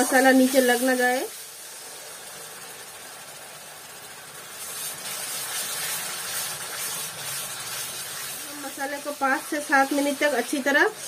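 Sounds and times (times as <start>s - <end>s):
food sizzling in oil: 0.0s - 11.0s
steel spatula stirring in pan: 4.5s - 11.0s.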